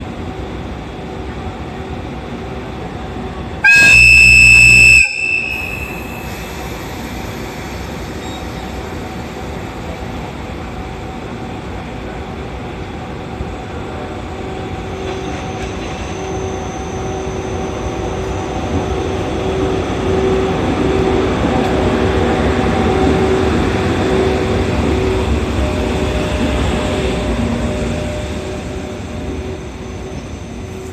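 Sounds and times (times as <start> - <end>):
locomotive running hum: 0.0 - 30.9
locomotive air horn blast: 3.6 - 6.5.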